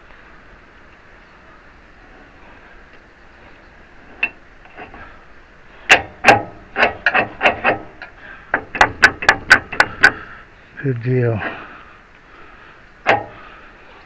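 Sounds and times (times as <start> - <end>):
hammer striking metal pin: 5.9 - 10.2.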